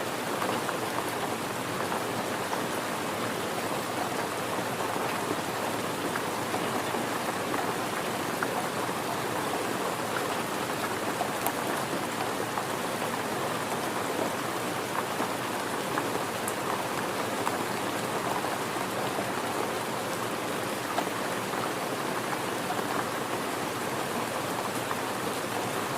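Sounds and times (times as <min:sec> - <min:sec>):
steady rain falling: 0:00.0 - 0:25.9.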